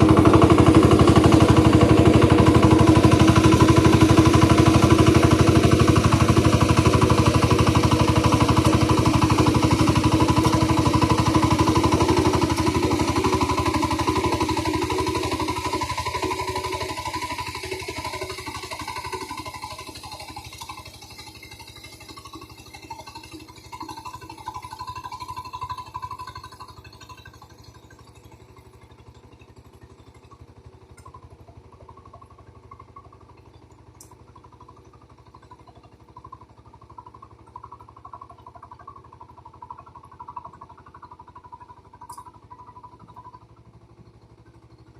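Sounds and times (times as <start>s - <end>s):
ploughing machine engine running: 0.0s - 44.9s.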